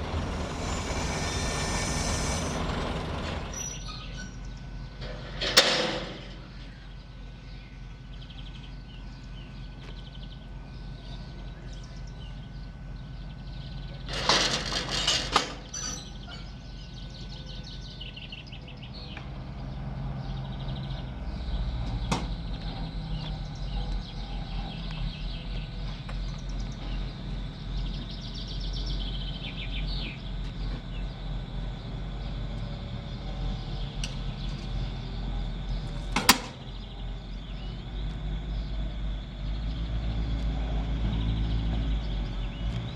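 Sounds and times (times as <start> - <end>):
steady high tone: 0.0 - 3.6
train clattering: 0.0 - 4.2
train engine rumble: 0.0 - 42.9.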